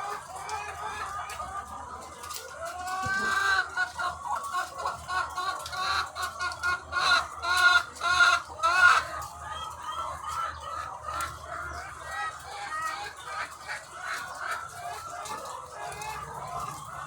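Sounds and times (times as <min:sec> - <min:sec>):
hens clucking: 0:00.0 - 0:17.0.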